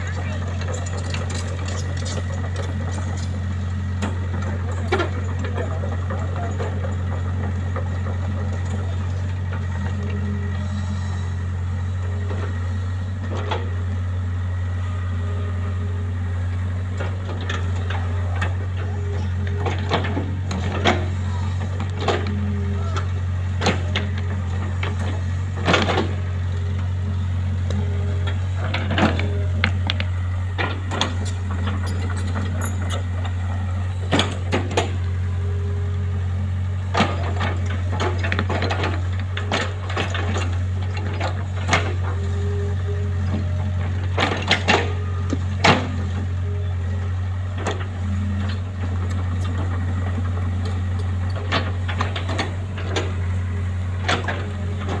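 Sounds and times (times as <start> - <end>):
machine engine humming: 0.0 - 55.0.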